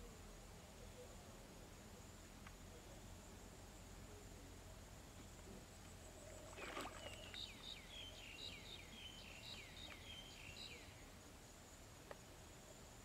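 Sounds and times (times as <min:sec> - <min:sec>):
bird chirping: 0:06.0 - 0:11.1.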